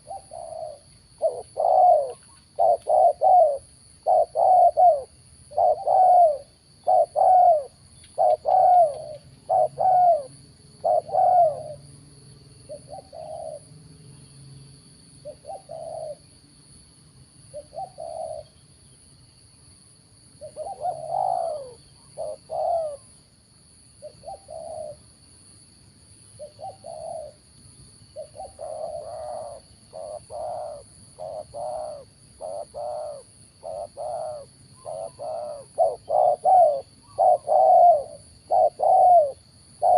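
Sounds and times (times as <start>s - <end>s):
dove cooing: 0.0s - 11.9s, 12.6s - 13.7s, 15.2s - 16.3s, 17.5s - 18.6s, 20.4s - 23.1s, 24.0s - 25.0s, 26.4s - 27.4s, 28.1s - 39.9s.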